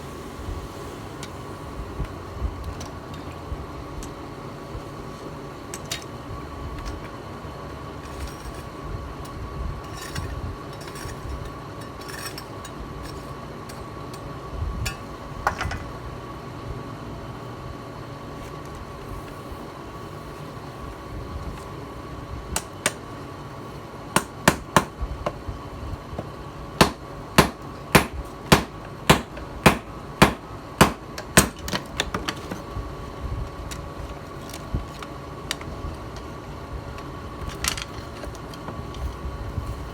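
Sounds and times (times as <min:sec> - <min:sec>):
steady hum: 0:00.0 - 0:31.7
hammer striking steel: 0:24.2 - 0:24.9, 0:26.8 - 0:31.6.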